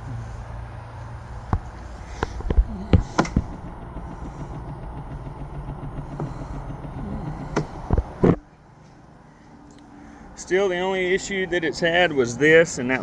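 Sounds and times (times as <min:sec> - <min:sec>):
engine idling: 0:00.0 - 0:13.0
sharp knocks and clicks: 0:01.5 - 0:08.4.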